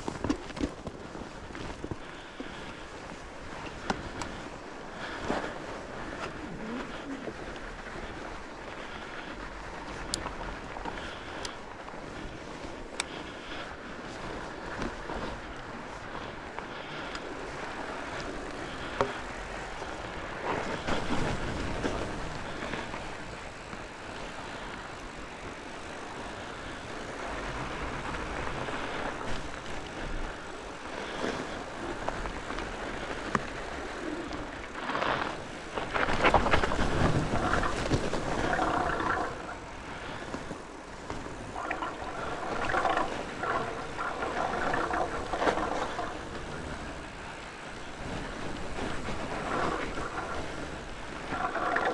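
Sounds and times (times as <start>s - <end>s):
bike rattling over bumps: 0.0s - 51.9s
bike tyres rolling on dirt: 0.0s - 51.9s
wind on microphone: 26.2s - 51.9s.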